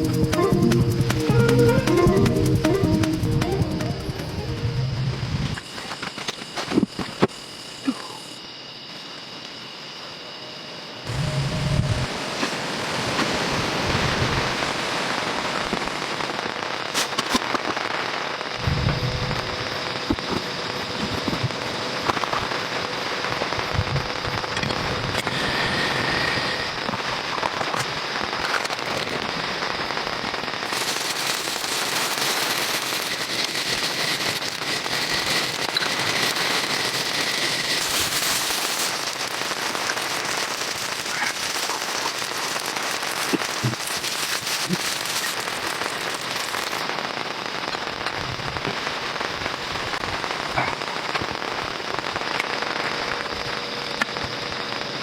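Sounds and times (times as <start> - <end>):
heavy rain falling: 11.1 - 17.1, 30.6 - 52.1.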